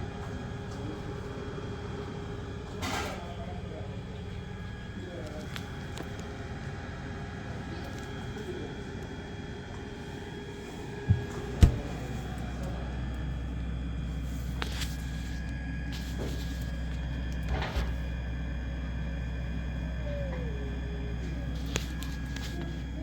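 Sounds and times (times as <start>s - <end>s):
refrigerator compressor humming: 0.0s - 23.0s
knocks: 11.1s - 12.0s.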